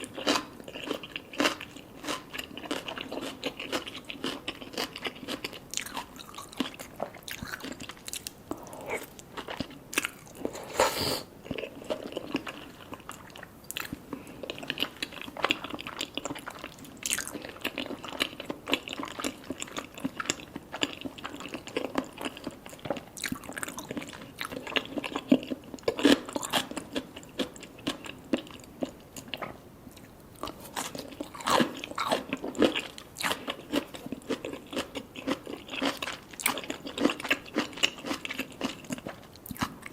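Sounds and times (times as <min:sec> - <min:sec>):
wet chewing with crunching: 0:00.0 - 0:39.9.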